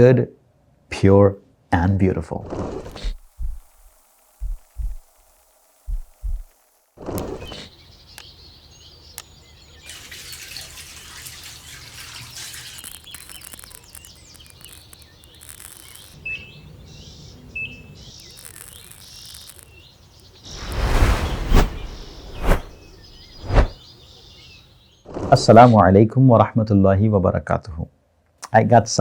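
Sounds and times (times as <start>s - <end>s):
birds chirping and twittering: 7.0s - 25.8s.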